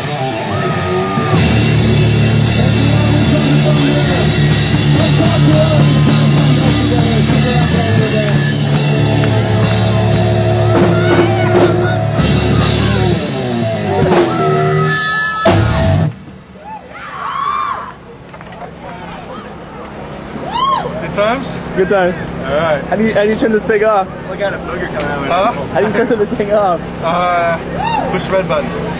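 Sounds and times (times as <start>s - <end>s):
drum kit: 0.0s - 16.4s
distorted guitars: 0.0s - 16.5s
person singing: 2.5s - 9.0s.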